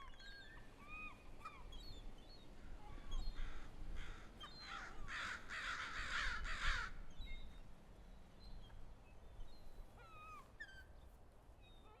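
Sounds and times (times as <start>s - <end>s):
crows cawing: 3.4s - 7.0s.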